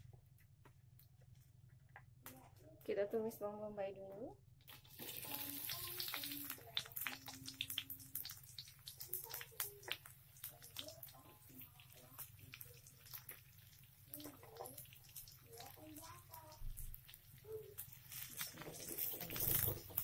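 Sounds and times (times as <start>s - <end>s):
oil crackling and popping: 4.6s - 20.0s
onion frying in hot oil: 4.7s - 20.0s.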